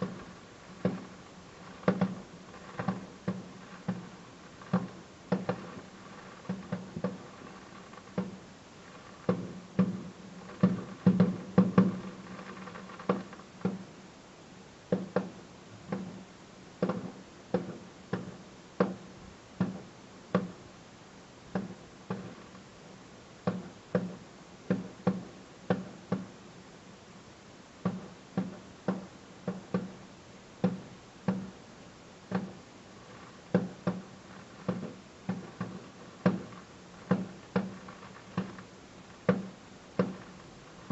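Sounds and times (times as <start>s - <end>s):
fireworks bangs: 0.0s - 13.9s, 21.5s - 22.6s, 32.3s - 40.9s.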